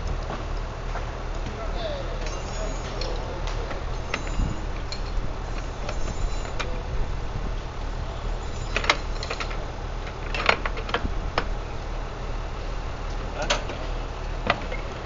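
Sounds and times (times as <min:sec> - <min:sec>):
low engine hum: 0:00.0 - 0:15.0
sharp clicks and rattles: 0:02.2 - 0:06.8, 0:08.4 - 0:11.6.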